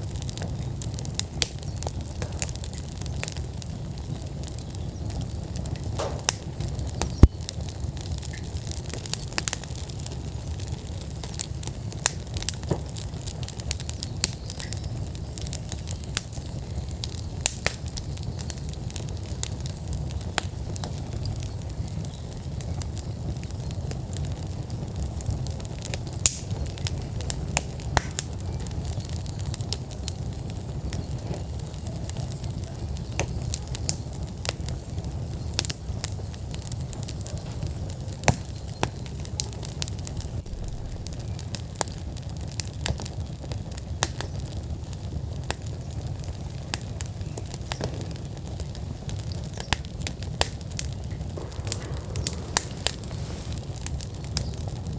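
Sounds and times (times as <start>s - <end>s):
wood fire crackling and popping: 0.0s - 54.9s
low rush of flame: 35.6s - 43.8s, 49.8s - 54.9s.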